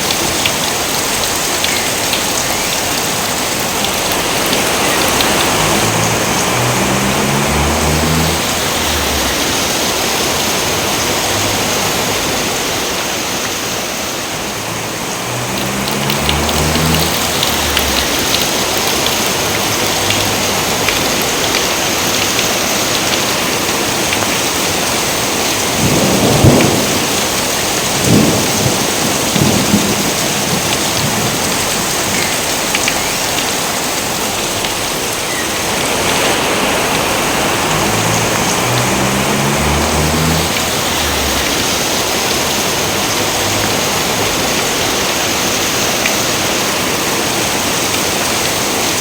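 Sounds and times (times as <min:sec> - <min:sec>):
heavy rain: 0:00.0 - 0:49.0
thunder claps: 0:25.7 - 0:32.9.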